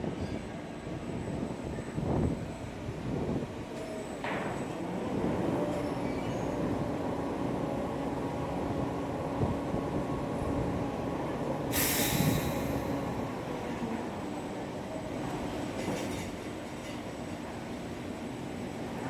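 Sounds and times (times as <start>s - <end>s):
sudden hiss: 11.7s - 13.0s.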